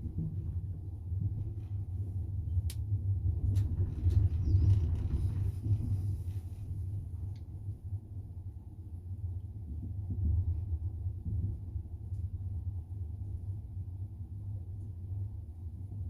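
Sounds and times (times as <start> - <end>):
train wheels rumbling on rails: 0.0 - 7.8.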